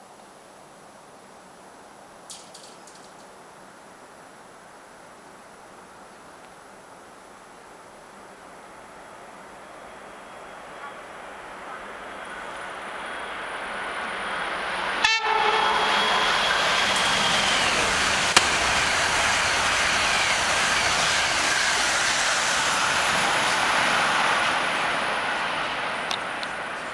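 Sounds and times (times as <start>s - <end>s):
high-speed train passing: 8.0s - 26.9s
train horn blast: 15.0s - 19.0s.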